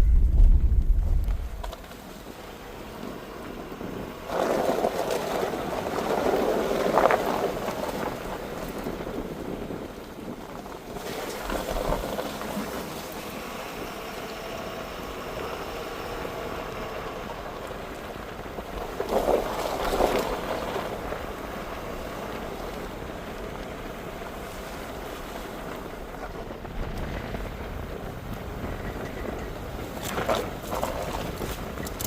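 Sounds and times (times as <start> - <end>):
engine and tyre rumble: 0.0 - 32.0
wind noise: 0.0 - 32.0.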